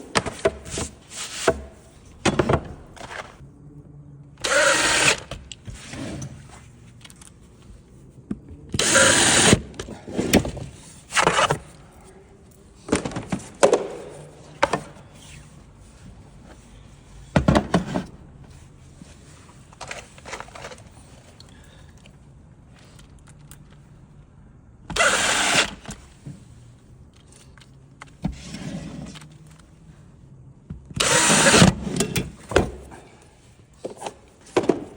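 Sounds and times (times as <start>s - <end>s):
power drill driving screws: 4.4s - 5.4s, 8.8s - 9.6s, 24.9s - 25.9s, 31.0s - 31.8s.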